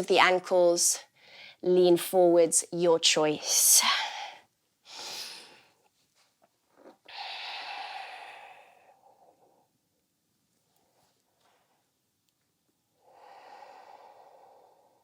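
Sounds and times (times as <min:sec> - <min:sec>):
person breathing: 0:07.1 - 0:09.8, 0:13.0 - 0:15.0.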